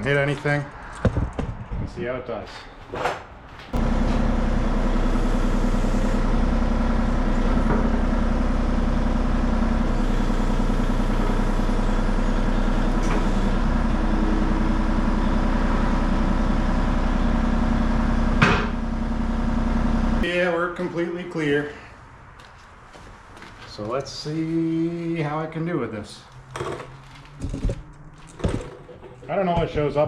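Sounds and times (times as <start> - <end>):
excavator engine running: 3.7 - 20.3.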